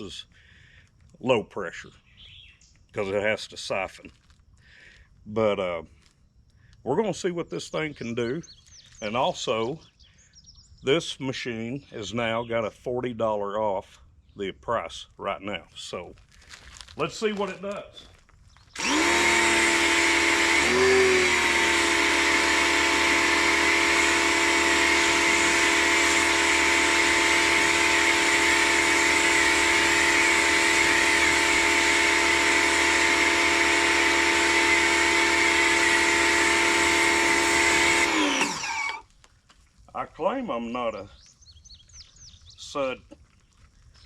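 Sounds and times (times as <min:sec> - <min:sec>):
pressure washer motor humming: 0:18.8 - 0:39.1.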